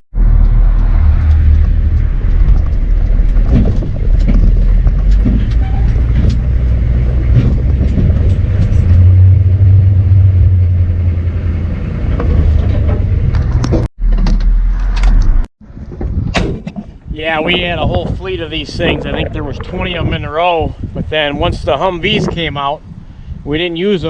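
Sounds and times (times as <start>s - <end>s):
knocks and rattles: 0.2s - 11.1s, 12.0s - 20.0s
diesel truck engine drone: 0.2s - 13.9s.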